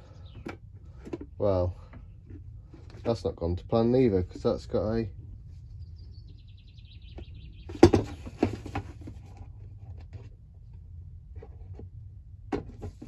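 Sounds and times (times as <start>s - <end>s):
hedge trimmer parts knocking: 7.7s - 8.9s.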